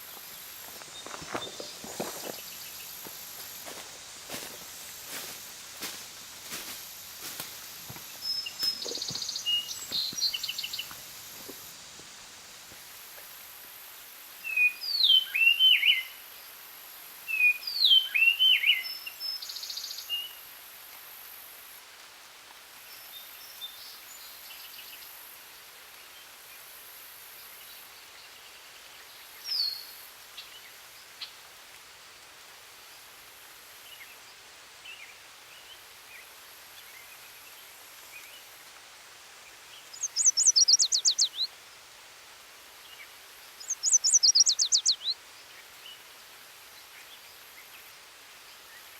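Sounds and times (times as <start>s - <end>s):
songbirds singing: 0.0s - 3.1s, 7.2s - 11.6s, 17.3s - 20.4s, 39.5s - 41.6s, 42.8s - 48.9s
faint hiss: 0.0s - 48.9s.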